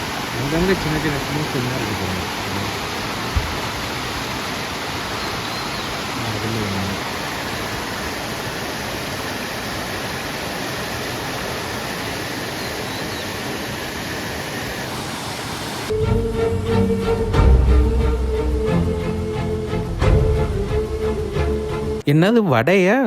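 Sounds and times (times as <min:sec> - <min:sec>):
water rushing down dam face: 0:00.0 - 0:15.9.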